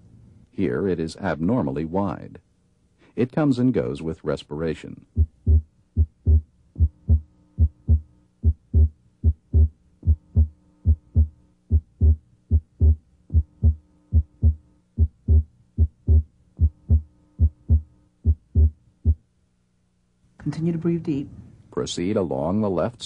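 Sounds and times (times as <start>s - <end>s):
heartbeat through stethoscope: 5.1s - 19.2s.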